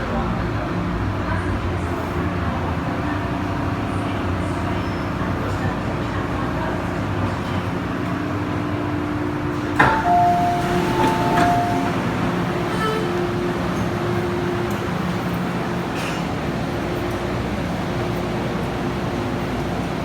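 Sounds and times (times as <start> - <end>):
train running noise: 0.0 - 20.0
two-note electronic tone: 9.8 - 12.0.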